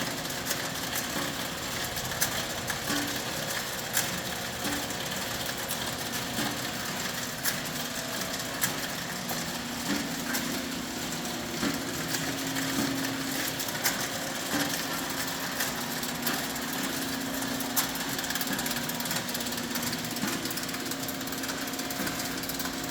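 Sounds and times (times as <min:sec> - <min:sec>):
conveyor motor hum: 0:00.0 - 0:22.9
sharp clicks and knocks: 0:11.5 - 0:22.9.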